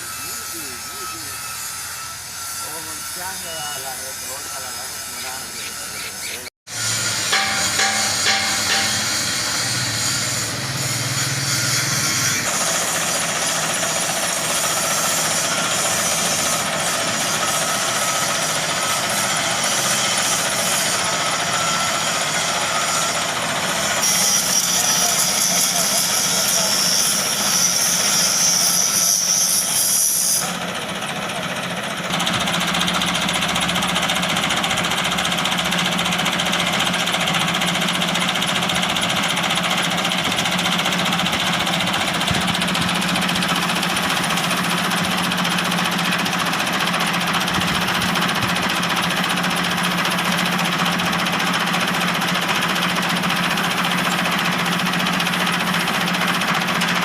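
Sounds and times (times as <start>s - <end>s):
tractor engine running: 30.6s - 57.0s.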